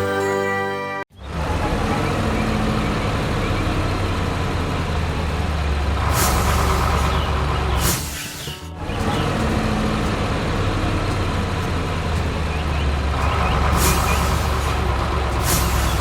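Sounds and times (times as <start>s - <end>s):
truck engine rumbling: 1.1s - 16.0s
air brake hisses: 6.0s - 9.2s, 13.4s - 16.0s.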